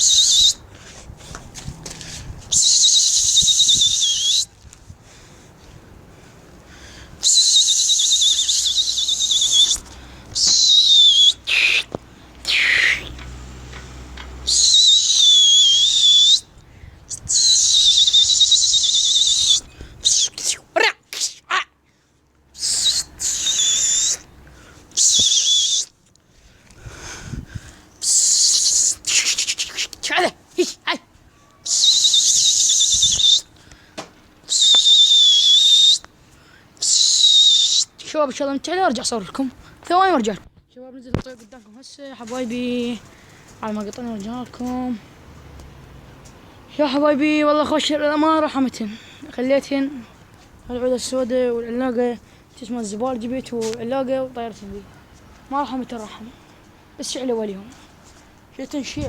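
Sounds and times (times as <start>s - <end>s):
loud shrill whistling: 0.0s - 0.6s, 2.5s - 4.5s, 7.2s - 9.8s, 10.4s - 11.9s, 14.4s - 16.5s, 17.2s - 20.4s, 22.6s - 24.2s, 25.0s - 25.9s, 31.6s - 33.5s, 34.5s - 36.1s, 36.8s - 37.9s.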